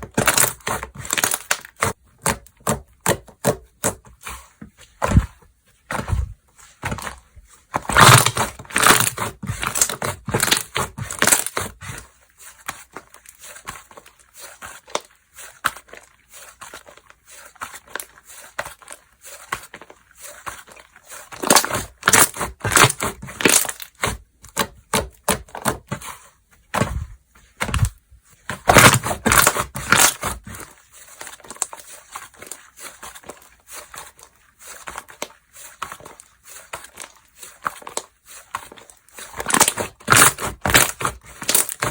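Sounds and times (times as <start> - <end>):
slime squished and popped by hand: 7.8 - 11.8, 28.6 - 30.5, 39.4 - 41.9.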